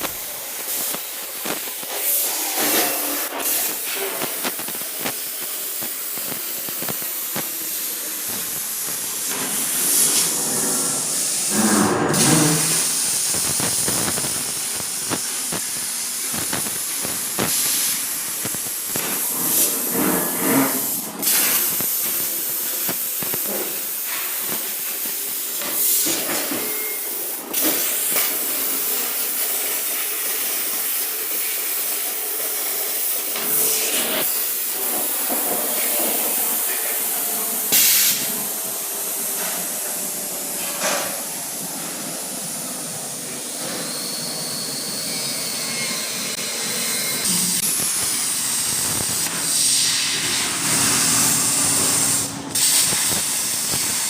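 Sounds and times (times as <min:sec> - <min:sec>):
metal-cutting machine hissing: 0:00.0 - 0:54.0.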